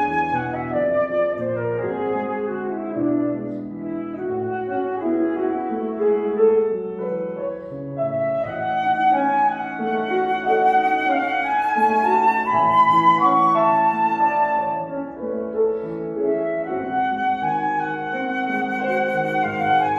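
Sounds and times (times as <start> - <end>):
piano: 0.0 - 19.9
flute sustained notes: 8.0 - 15.1, 16.2 - 19.9.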